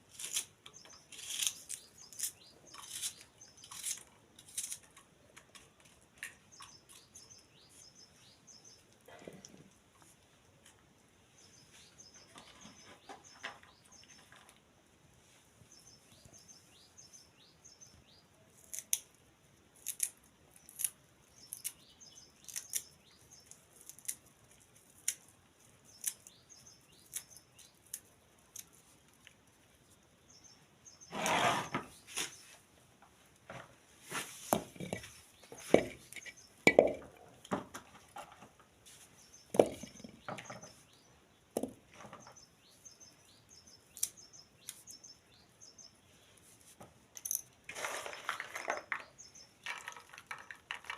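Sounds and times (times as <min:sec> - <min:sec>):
birds chirping: 0:38.9 - 0:46.3, 0:47.9 - 0:50.9.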